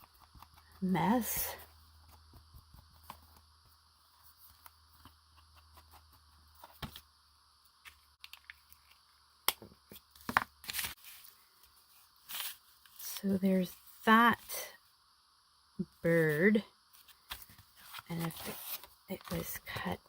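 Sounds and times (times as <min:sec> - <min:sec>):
paper rustling: 0:17.0 - 0:19.8.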